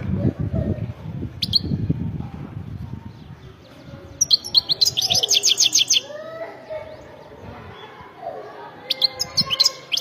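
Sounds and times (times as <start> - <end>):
goldfinch chirping and twittering: 3.1 - 6.1, 8.8 - 10.0.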